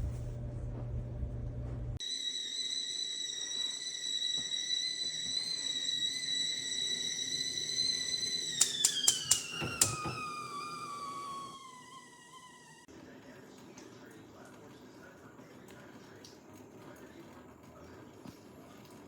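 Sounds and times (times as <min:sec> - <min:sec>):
kettle whistling: 0:02.0 - 0:13.0.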